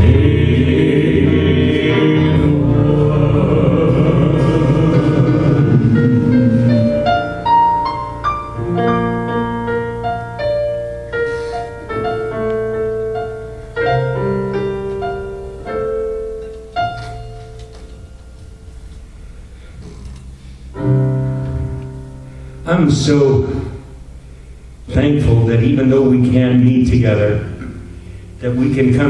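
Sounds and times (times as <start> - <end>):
keyboard playing sustained chords: 0.0 - 29.0.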